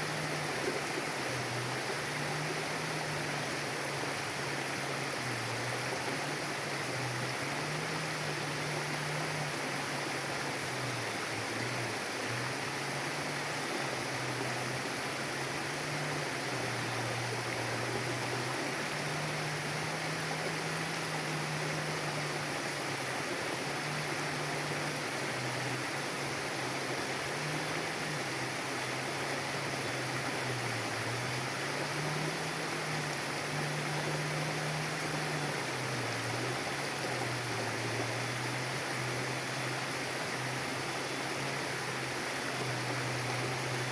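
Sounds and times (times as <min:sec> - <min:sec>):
low two-pitch hum: 0:00.0 - 0:43.9
river water rushing: 0:00.0 - 0:43.9.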